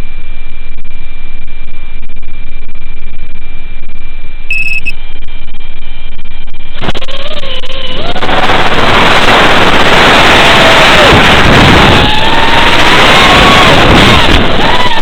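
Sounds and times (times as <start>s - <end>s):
constant high-pitched tone: 0.0s - 10.4s
short double beep: 4.5s - 5.0s.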